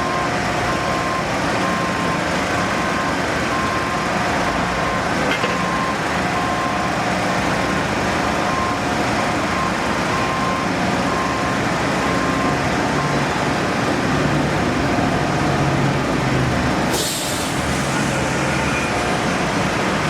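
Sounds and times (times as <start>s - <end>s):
reversing alarm beeping: 0.0s - 15.9s
heavy vehicle engine running: 0.0s - 20.0s
brief hiss: 16.9s - 18.1s.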